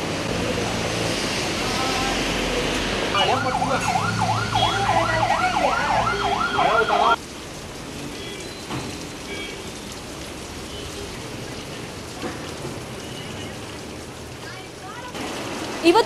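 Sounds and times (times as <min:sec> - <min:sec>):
heavy rain hissing: 0:00.0 - 0:16.0
siren yelping: 0:03.2 - 0:07.2.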